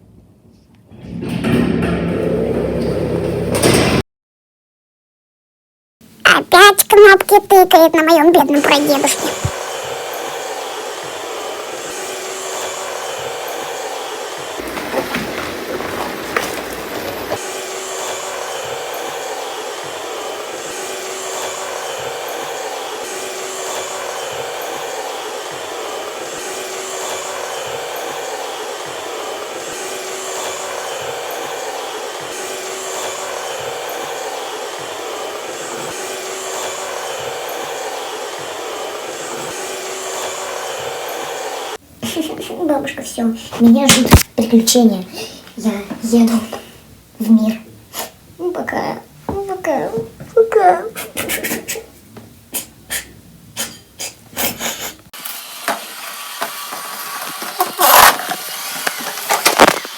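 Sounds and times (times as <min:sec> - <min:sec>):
vacuum cleaner motor whirring: 0:08.6 - 0:41.8, 0:55.0 - 0:59.9
knocks and clatter: 0:14.6 - 0:17.4.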